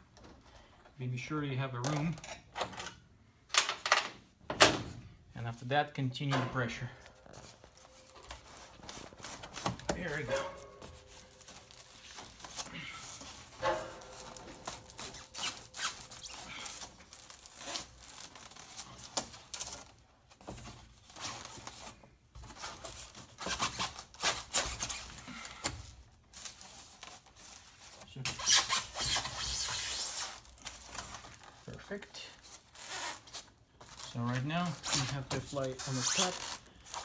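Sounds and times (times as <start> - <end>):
styrofoam squeaking against metal: 7.7 - 19.2, 22.5 - 25.7, 28.0 - 30.8, 32.6 - 37.0.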